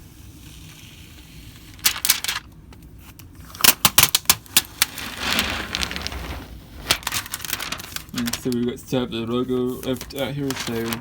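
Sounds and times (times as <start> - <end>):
plastic film peeling crackles: 3.1 - 8.7, 9.8 - 11.0.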